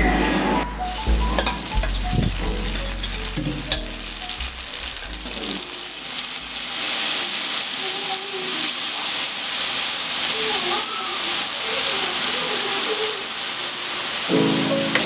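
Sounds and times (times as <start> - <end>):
pasta sizzling in a frying pan: 0.9 - 15.0
metal tongs clicking: 2.8 - 4.0.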